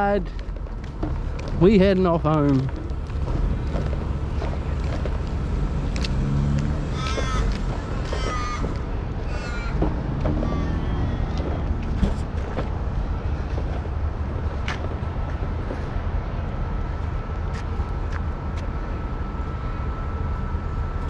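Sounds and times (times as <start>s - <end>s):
steady low rumble: 0.0s - 6.2s, 11.6s - 21.0s
crow cawing: 6.8s - 9.8s.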